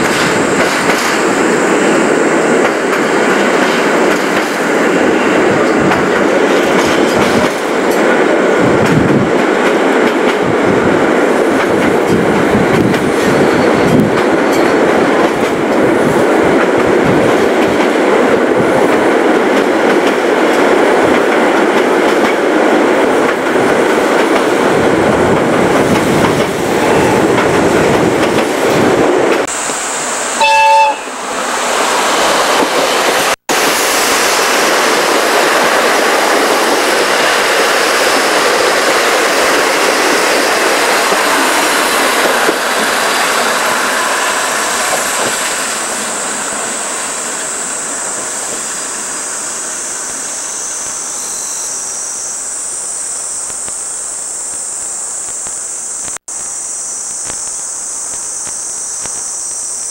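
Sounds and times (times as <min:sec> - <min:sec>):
train coaches rumbling: 0:00.0 - 0:59.9
train horn blast: 0:30.4 - 0:31.3
high insect drone: 0:39.6 - 0:59.9.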